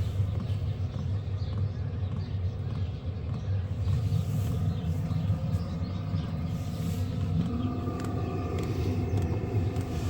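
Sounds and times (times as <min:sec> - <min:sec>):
heater rumbling: 0:03.8 - 0:10.0.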